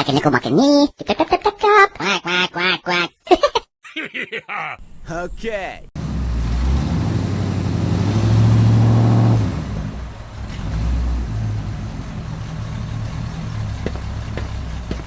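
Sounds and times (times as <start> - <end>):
tractor engine revving: 6.0 - 15.0.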